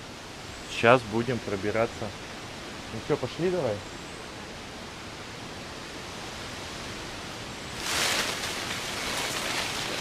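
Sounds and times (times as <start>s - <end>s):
outdoor hiss: 0.0s - 10.0s
leaves and branches rustling: 4.6s - 10.0s.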